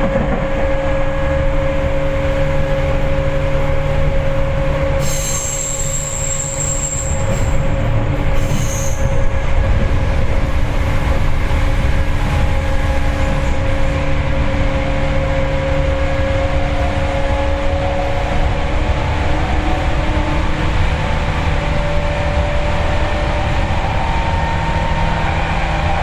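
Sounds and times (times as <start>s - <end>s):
train motor and gear hum: 0.0s - 26.0s
wheels rumbling on rail: 0.0s - 26.0s
high-pitched wheel squeal: 4.8s - 9.4s.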